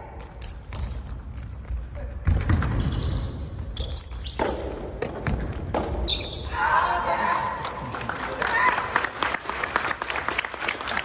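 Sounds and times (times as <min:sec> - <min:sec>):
ball bouncing on court: 0:00.0 - 0:06.5
shoe squeaks: 0:00.4 - 0:01.8, 0:02.8 - 0:05.0, 0:05.8 - 0:06.6
rackets hitting ball: 0:02.2 - 0:06.2.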